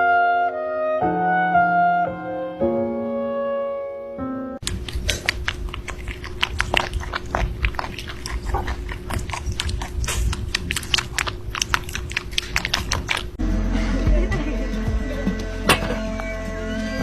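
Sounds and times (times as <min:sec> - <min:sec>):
animal chewing noisily: 0:04.6 - 0:13.4.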